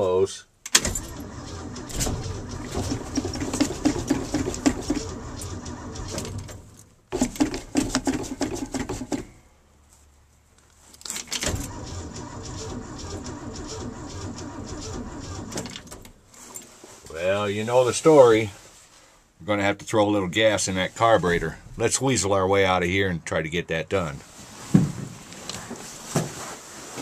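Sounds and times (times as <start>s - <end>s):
engine starter cranking: 0.7s - 9.2s, 11.4s - 16.2s.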